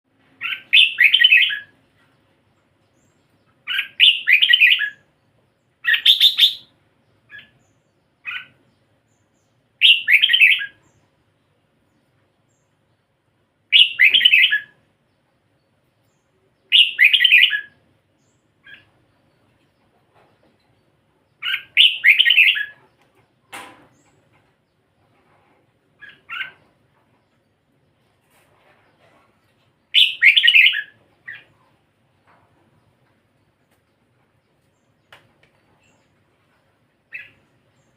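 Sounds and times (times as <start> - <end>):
bird singing warbled phrases: 0.1 - 25.2, 25.8 - 37.9.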